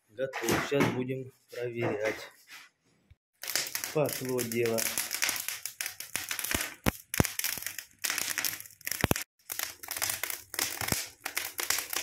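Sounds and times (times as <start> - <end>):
fire crackling and popping: 3.4 - 12.0.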